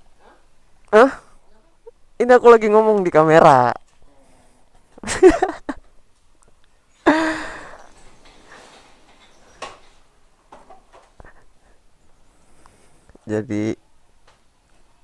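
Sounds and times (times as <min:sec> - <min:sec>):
breathy sound: 0:07.0 - 0:09.0.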